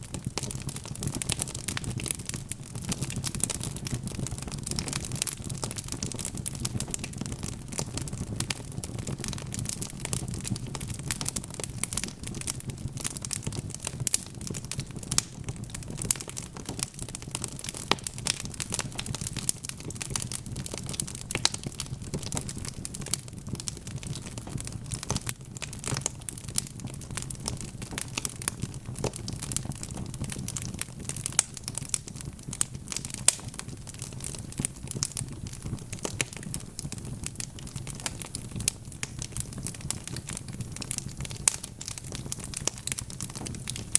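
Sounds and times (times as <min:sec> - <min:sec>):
fire crackling and popping: 0:00.0 - 0:43.9
low rumble of flames: 0:00.0 - 0:43.9.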